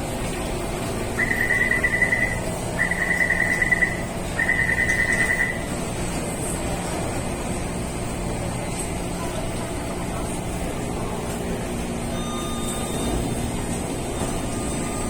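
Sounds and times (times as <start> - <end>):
low hum of train and station: 0.0 - 15.0
rapid high beeping: 1.2 - 5.7.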